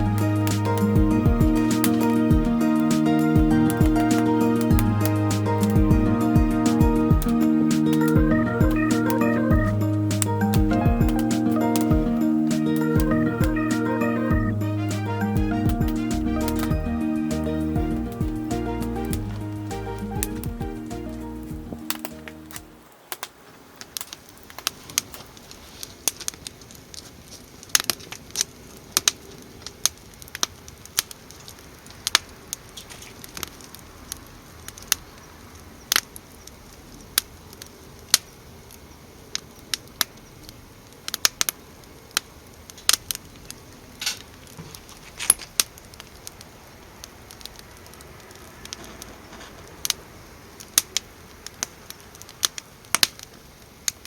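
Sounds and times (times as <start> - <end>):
wood fire crackling: 0.0 - 35.1.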